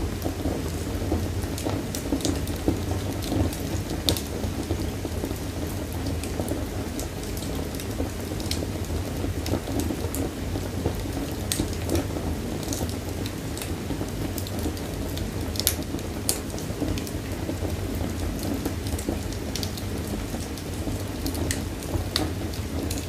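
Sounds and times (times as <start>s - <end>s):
flames rumbling: 0.0s - 23.0s
wood fire pops and snaps: 10.9s - 17.1s, 18.4s - 23.0s.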